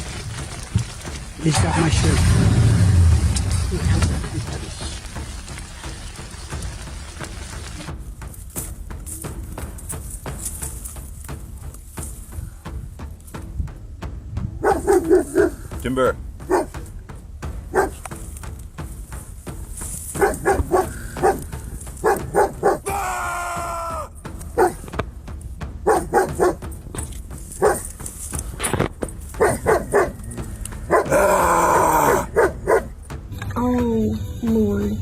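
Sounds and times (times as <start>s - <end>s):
dog barking and yipping: 14.6s - 15.6s, 16.4s - 16.8s, 17.7s - 18.0s, 20.2s - 21.4s, 22.0s - 22.9s, 24.5s - 24.9s, 25.8s - 26.6s, 27.6s - 27.9s, 29.4s - 30.2s, 30.9s - 31.2s, 32.3s - 33.0s.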